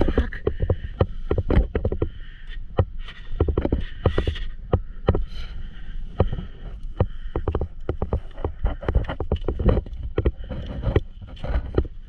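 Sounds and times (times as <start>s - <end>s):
knocks and rattles from bumps: 6.2s - 12.0s.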